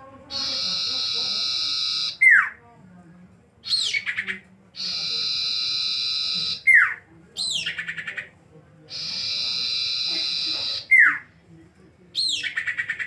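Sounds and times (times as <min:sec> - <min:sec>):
bird call with high trill: 0:00.3 - 0:02.5, 0:08.9 - 0:11.2.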